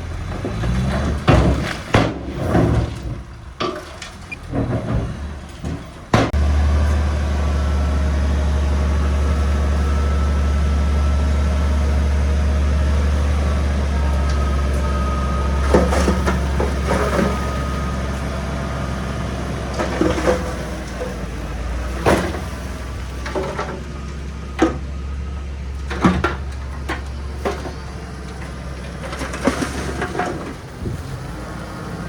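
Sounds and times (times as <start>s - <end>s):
machinery clanks and knocks: 0.0s - 7.1s, 12.9s - 18.4s, 19.5s - 25.0s, 25.7s - 31.0s
diesel engine drone: 0.0s - 32.0s.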